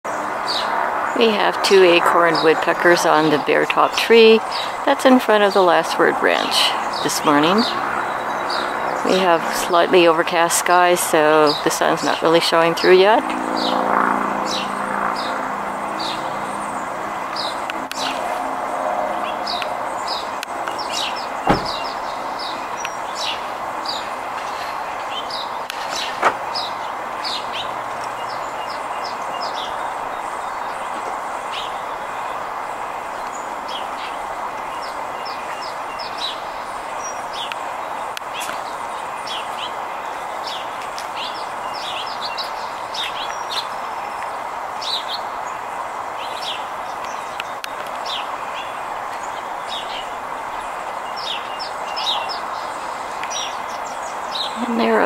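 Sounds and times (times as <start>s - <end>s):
steady background noise: 0.1s - 55.0s
high bird chirps: 19.2s - 24.1s.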